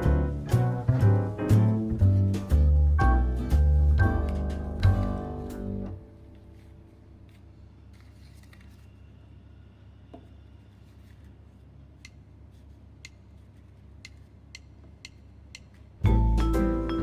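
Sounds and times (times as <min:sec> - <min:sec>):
soft sharp ticks: 0:12.0 - 0:12.2, 0:13.0 - 0:16.0.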